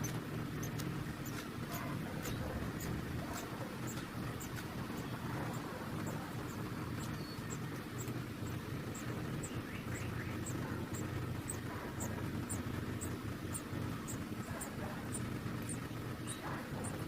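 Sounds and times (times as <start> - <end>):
baby birds peeping: 0.0 - 17.0
steady low hum: 0.0 - 17.0.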